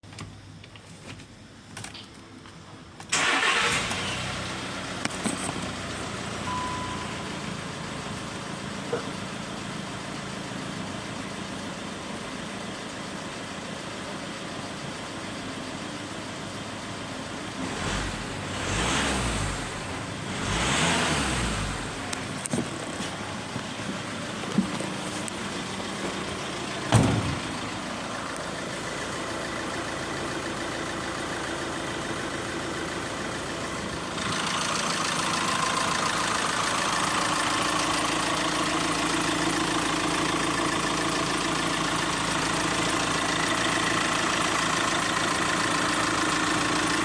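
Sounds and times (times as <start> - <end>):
van engine starting and idling: 2.7 - 47.0
engine revving: 3.2 - 4.8, 17.6 - 22.1.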